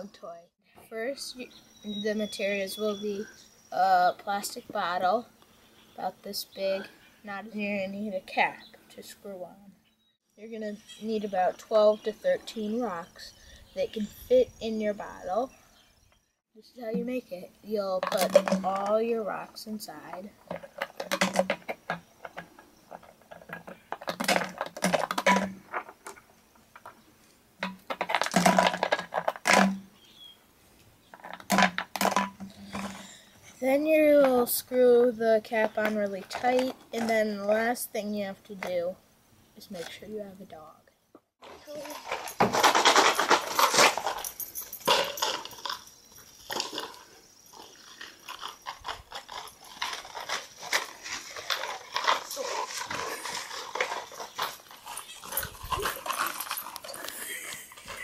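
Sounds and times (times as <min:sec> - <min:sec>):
rocks rattling in plastic bottle: 0:17.8 - 0:27.0, 0:27.6 - 0:29.9, 0:31.1 - 0:33.2, 0:35.4 - 0:37.7, 0:41.4 - 0:58.0.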